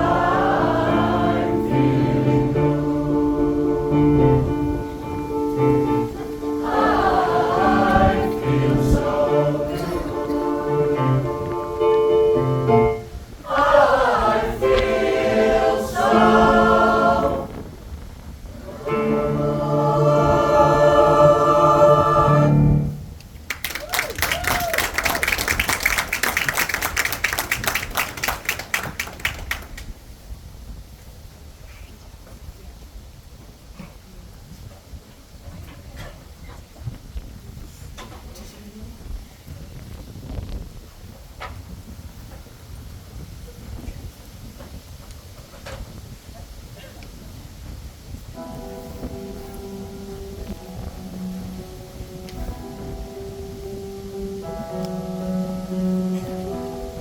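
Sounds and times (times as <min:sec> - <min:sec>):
choir singing in close harmony: 0:00.0 - 0:12.2, 0:13.2 - 0:17.8, 0:18.6 - 0:23.0
audience applause: 0:23.5 - 0:29.9.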